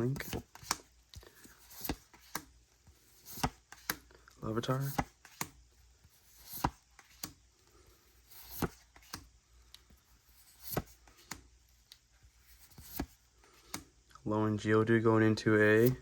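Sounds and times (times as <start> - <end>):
trading cards tapping and clicking: 0.0 - 2.5, 3.1 - 5.6, 8.4 - 9.9
faint card rustling: 0.0 - 13.9.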